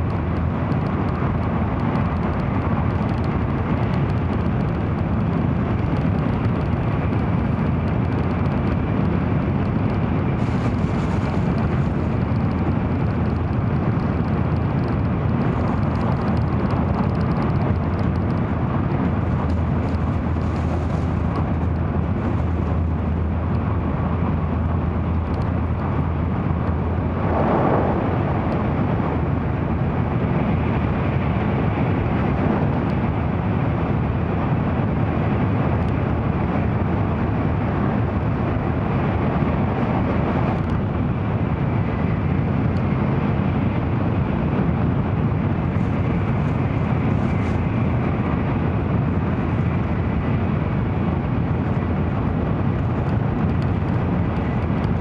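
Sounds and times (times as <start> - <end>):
train cabin rumble: 0.1 - 31.1
short whoosh: 26.7 - 29.6.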